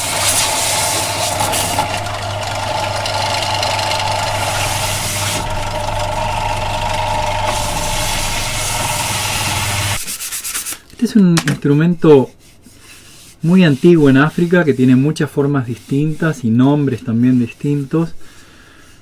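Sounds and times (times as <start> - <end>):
electric power tool on wood: 0.0 - 10.0.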